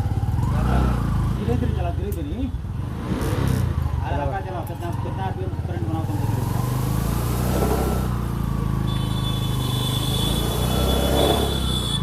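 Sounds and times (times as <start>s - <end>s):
motorcycle engine running: 0.0s - 1.9s.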